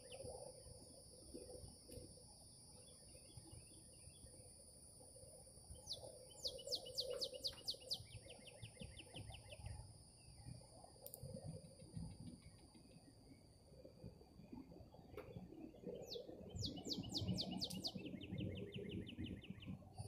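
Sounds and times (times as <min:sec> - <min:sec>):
steady high-pitched whine: 0:00.0 - 0:20.0
songbird trilling: 0:05.9 - 0:09.7, 0:16.0 - 0:19.6
sharp click: 0:11.0 - 0:11.3.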